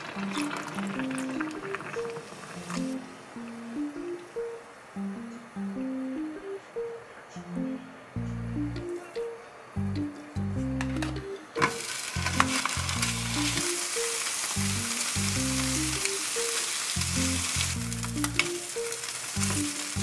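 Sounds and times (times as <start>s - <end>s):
soft background music: 0.0s - 20.0s
ham sizzling in frying pan: 11.6s - 20.0s.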